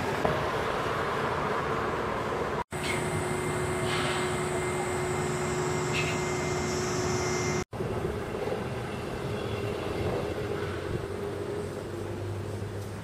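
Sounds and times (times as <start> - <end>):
steady background noise: 0.0 - 13.0
vehicle running hum: 0.0 - 13.0.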